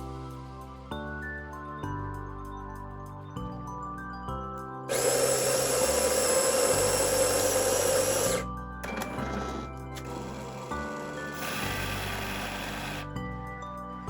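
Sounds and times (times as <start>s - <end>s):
background music: 0.0s - 14.0s
small electric motor running: 4.9s - 13.1s.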